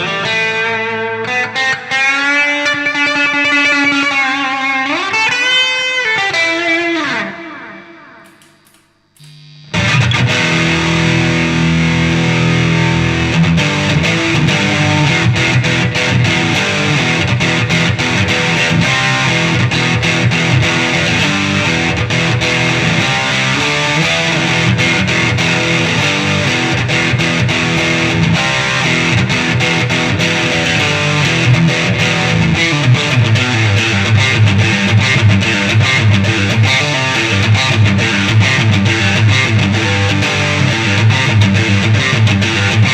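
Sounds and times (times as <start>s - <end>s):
distorted electric guitar riff: 0.0s - 42.9s.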